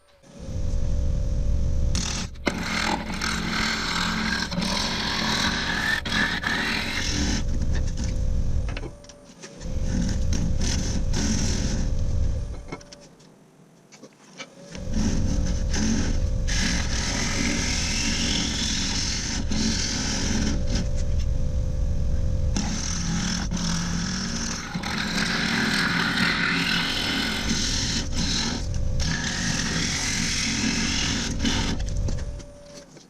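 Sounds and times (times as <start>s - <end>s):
wood lathe rumbling: 0.3s - 9.0s, 9.6s - 12.9s, 14.7s - 32.6s
rough rubbing on wood: 14.8s - 21.4s.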